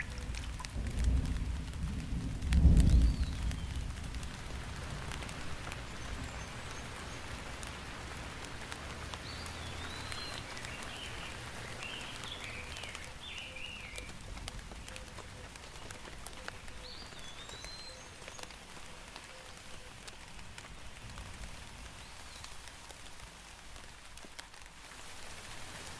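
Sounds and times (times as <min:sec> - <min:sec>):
rain drops ticking: 0:00.0 - 0:25.9
bird chirping: 0:09.2 - 0:14.1, 0:14.8 - 0:18.6.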